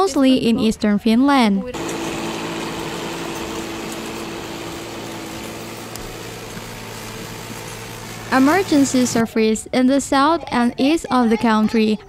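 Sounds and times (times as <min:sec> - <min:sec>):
motor humming: 0:01.8 - 0:09.3.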